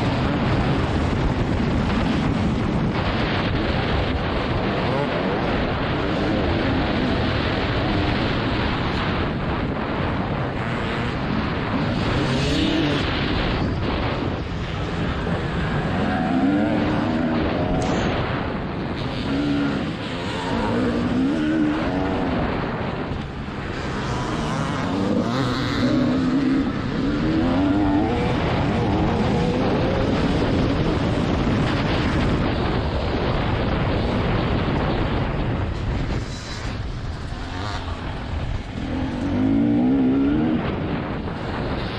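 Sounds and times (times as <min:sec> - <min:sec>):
motocross bike engine revving: 0:00.0 - 0:41.9
wind buffeting on microphone: 0:00.0 - 0:41.9.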